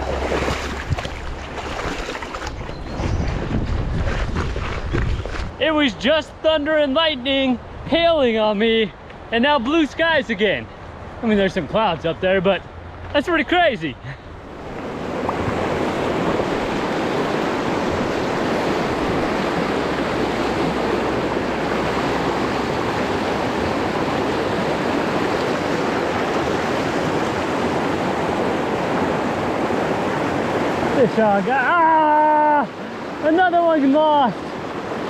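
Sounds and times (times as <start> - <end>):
river rushing over rapids: 14.5 - 35.0.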